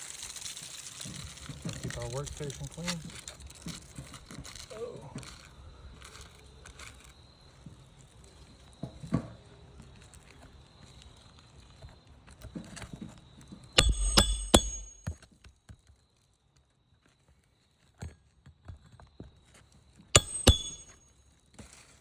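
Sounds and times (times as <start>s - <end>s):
sharp ringing metallic strikes: 13.8s - 15.1s, 20.2s - 21.0s.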